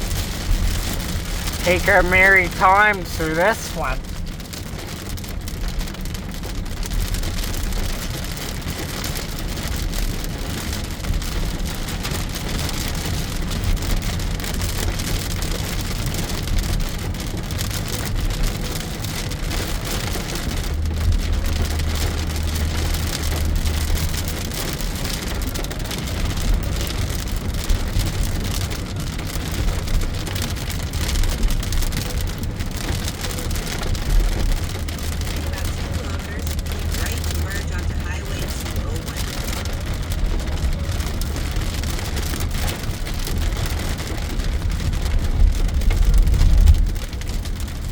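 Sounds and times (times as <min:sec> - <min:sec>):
heavy rain on car roof: 0:00.0 - 0:47.9
road noise rumble: 0:00.0 - 0:47.9.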